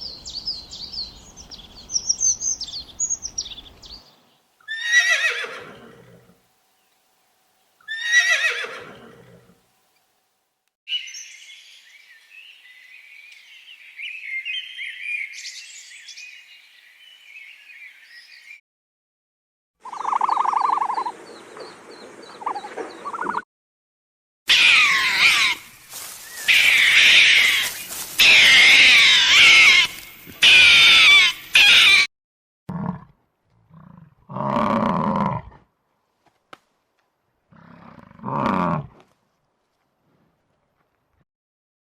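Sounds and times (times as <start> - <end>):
high chirping animal calls: 19.8 - 21.1, 24.5 - 32.1.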